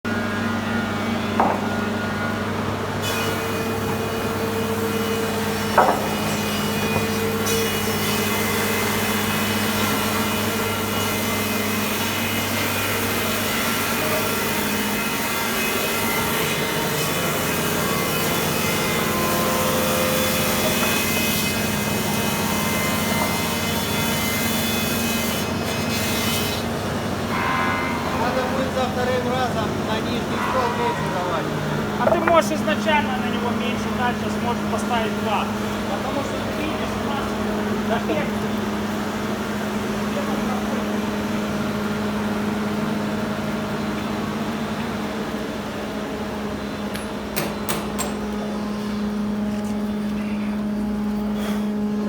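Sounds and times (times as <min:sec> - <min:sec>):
sharp knocks: 0:05.7 - 0:07.2, 0:32.0 - 0:32.8
planer humming: 0:32.0 - 0:32.7.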